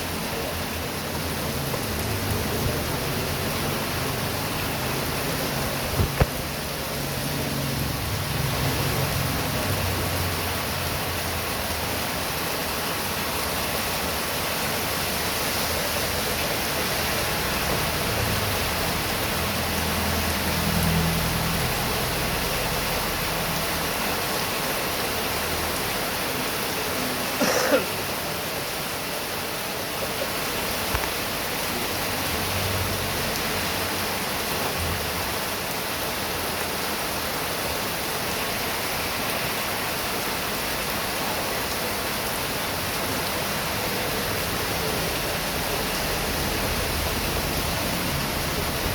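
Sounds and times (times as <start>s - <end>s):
heavy rain pouring: 0.0s - 48.9s.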